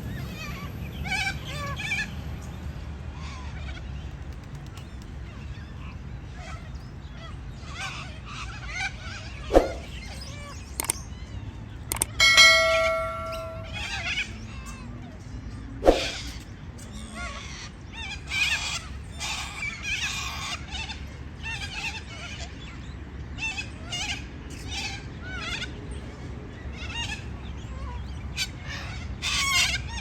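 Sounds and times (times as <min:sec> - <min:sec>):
metallic bell-like ring: 0:11.9 - 0:14.0.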